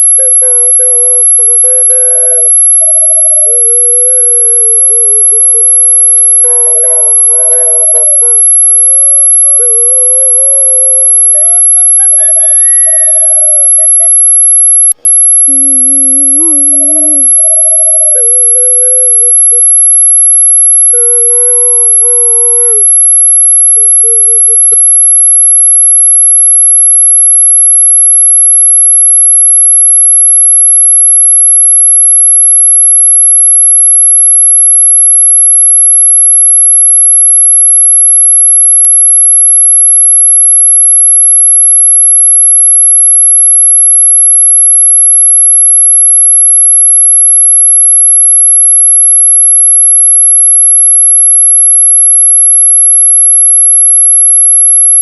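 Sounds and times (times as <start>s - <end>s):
high-pitched electronic tone: 0.0s - 34.0s.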